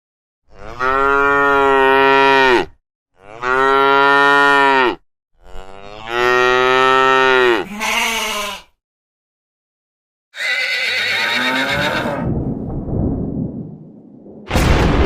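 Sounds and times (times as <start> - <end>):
cow mooing: 0.5 - 8.7, 10.4 - 12.2.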